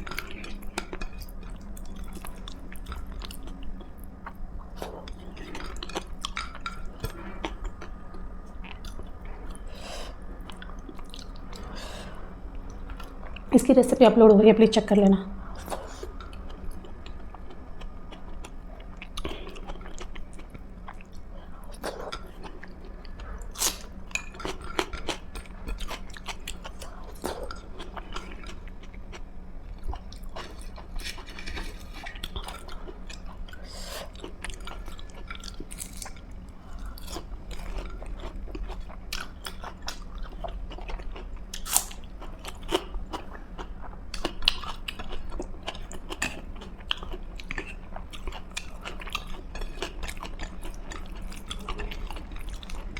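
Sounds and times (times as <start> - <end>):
steady low hum: 0.0 - 52.9
person chewing food: 10.4 - 13.5, 15.5 - 52.9.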